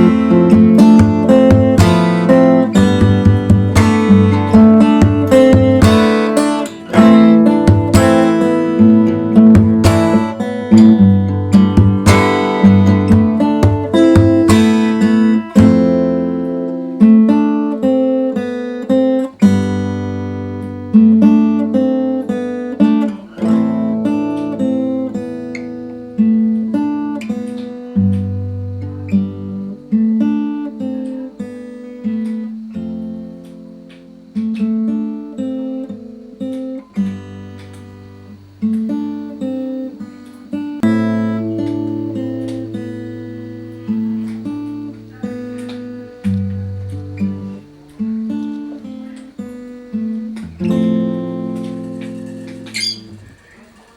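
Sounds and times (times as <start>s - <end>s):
fingerstyle acoustic guitar: 0.0s - 53.9s.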